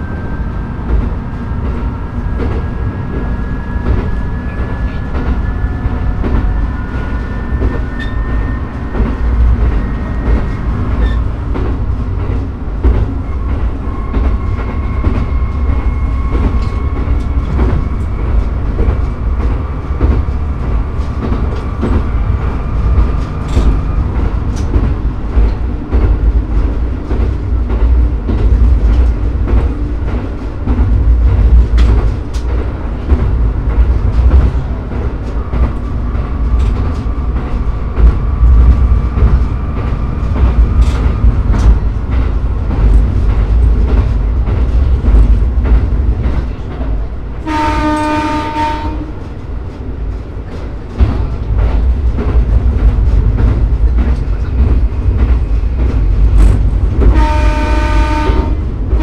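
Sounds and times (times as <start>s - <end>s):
rail joint clicks: 0.0s - 59.0s
railcar running rumble: 0.0s - 59.0s
train horn: 47.4s - 49.3s, 57.0s - 59.0s.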